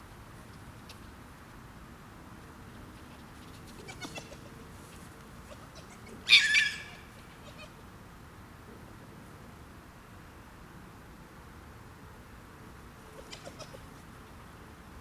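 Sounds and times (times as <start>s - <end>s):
young animal shrill squeal: 6.3s - 7.7s.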